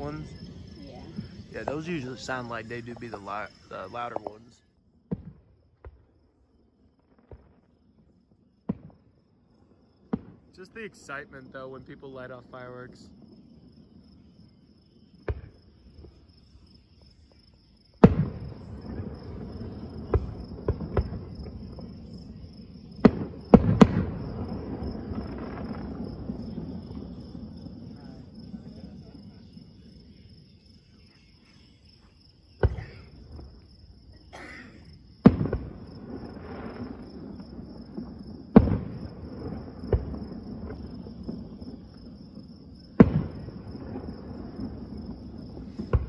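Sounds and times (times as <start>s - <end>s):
firework shells bursting: 0.0s - 6.0s
crickets chirring: 0.0s - 46.0s.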